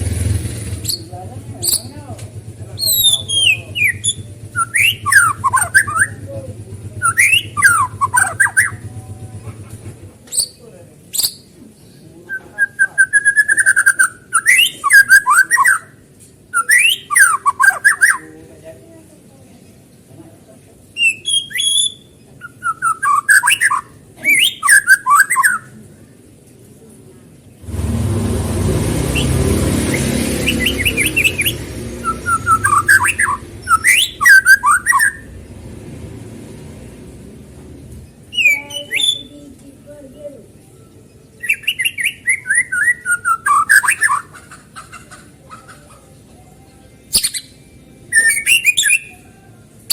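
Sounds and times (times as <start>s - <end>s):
passing traffic rumble: 0.0s - 49.9s
songbird singing whistled notes: 2.8s - 8.9s, 10.3s - 18.3s, 21.0s - 25.8s, 30.0s - 35.4s, 38.2s - 39.4s, 40.6s - 44.3s, 46.6s - 49.9s.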